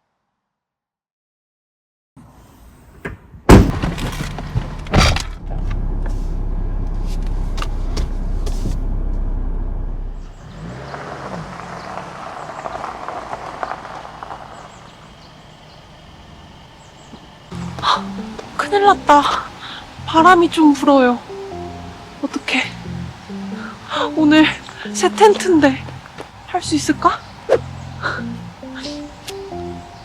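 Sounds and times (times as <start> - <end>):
heavy thuds: 3.5 - 9.3
car low rumble: 3.5 - 30.0
rustling hiss: 16.8 - 30.0.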